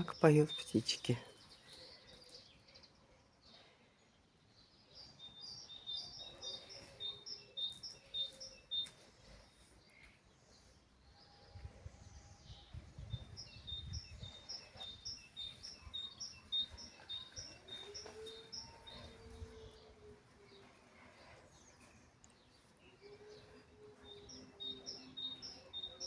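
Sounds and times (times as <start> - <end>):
songbirds singing: 0.0 - 26.0.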